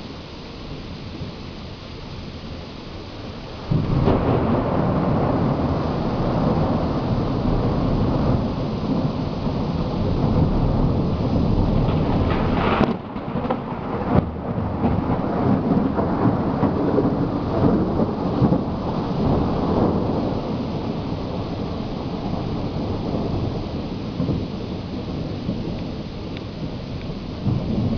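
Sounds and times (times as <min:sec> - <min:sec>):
steady rain: 0:00.0 - 0:27.9
rolling thunder: 0:03.6 - 0:27.9
sharp thunder crack: 0:03.7 - 0:25.7.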